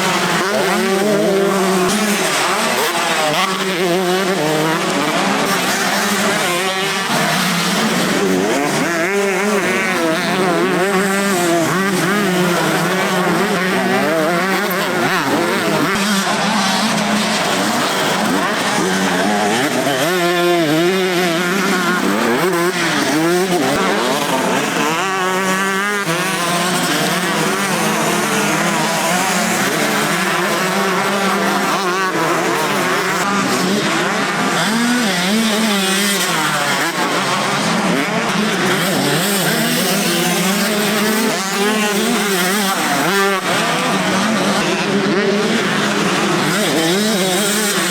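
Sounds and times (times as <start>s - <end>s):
motocross bikes racing: 0.0s - 47.9s.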